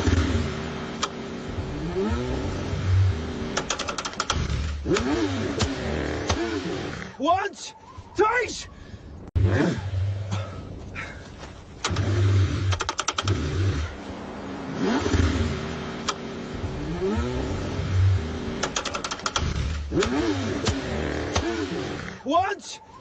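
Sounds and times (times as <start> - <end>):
car engine cranking and revving: 0.0 - 7.2, 9.3 - 10.8, 11.7 - 22.3
rapid clattering ticks: 3.6 - 5.1, 12.7 - 13.4, 18.6 - 20.8.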